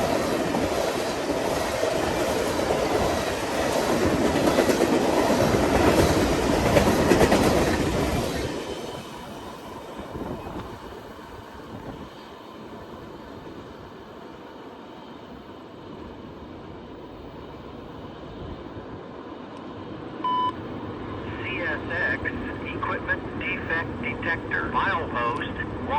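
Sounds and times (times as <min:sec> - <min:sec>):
train wheels clicking on rails: 0:00.0 - 0:12.3.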